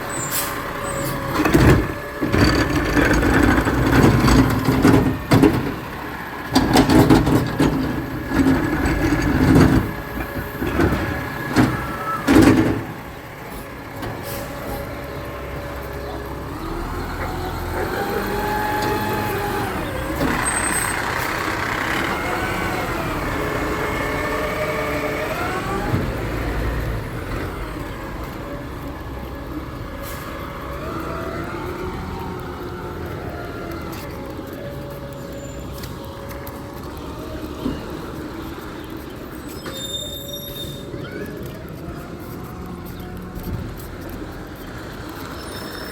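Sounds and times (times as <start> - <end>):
garbage truck bangs and clattering: 0.0 - 13.2
truck engine running: 0.0 - 45.9.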